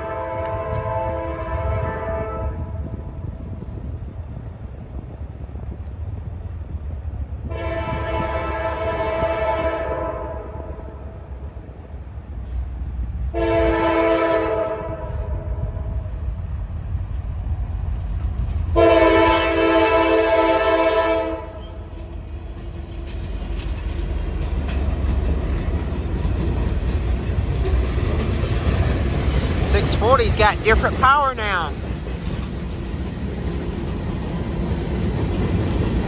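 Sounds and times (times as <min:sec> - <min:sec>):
locomotive air horn blasts: 0:00.0 - 0:02.9, 0:07.4 - 0:10.9, 0:13.3 - 0:15.9, 0:18.8 - 0:21.7
low train rumble: 0:00.0 - 0:36.0.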